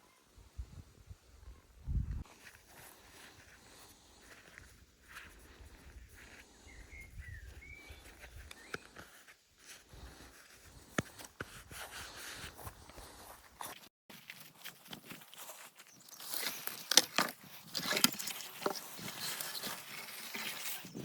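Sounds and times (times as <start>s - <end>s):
grass and brush rustling: 1.9s - 21.0s
bird chirping: 6.5s - 9.0s.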